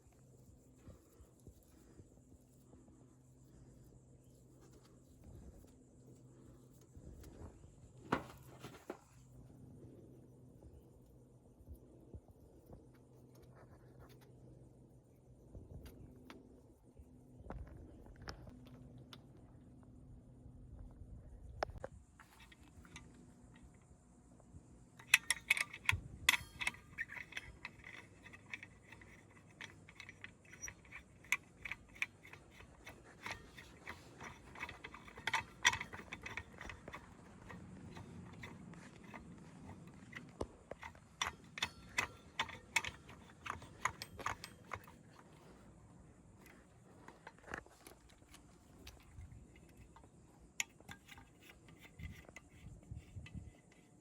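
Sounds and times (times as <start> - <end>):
metal tools clicking and clinking: 25.0 - 45.7, 46.4 - 54.0.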